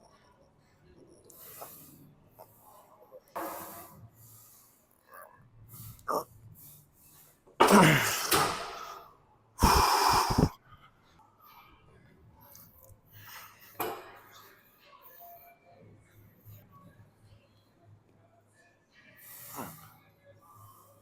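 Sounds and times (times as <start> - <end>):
person breathing out hard: 9.6 - 10.5.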